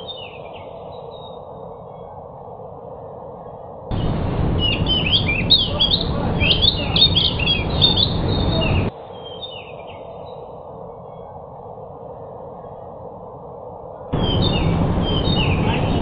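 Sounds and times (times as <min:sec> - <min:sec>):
bird chirping song: 0:00.0 - 0:02.4, 0:03.0 - 0:13.0, 0:14.2 - 0:16.0
loud steady hiss: 0:03.9 - 0:09.8.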